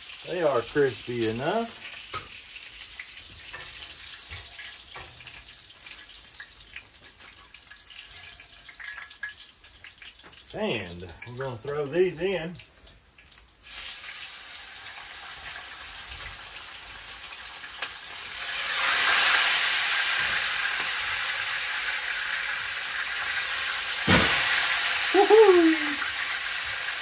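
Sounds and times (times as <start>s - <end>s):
meat sizzling in hot oil: 0.0s - 27.0s
short vocal sound: 25.1s - 26.0s.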